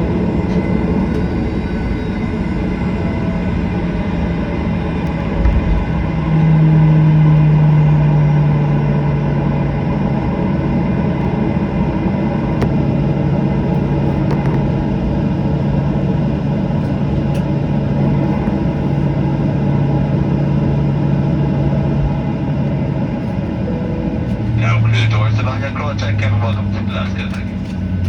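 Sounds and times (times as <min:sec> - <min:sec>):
jet engines droning: 0:00.0 - 0:28.0
faint clicks in cabin: 0:16.8 - 0:17.6.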